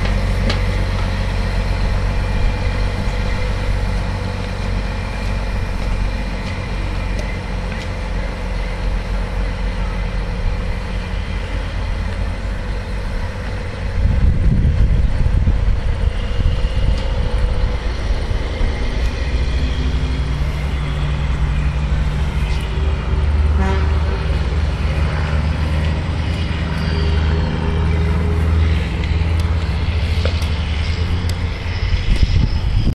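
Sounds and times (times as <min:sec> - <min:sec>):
truck diesel engine: 0:00.0 - 0:32.9
truck horn toots: 0:20.6 - 0:24.5.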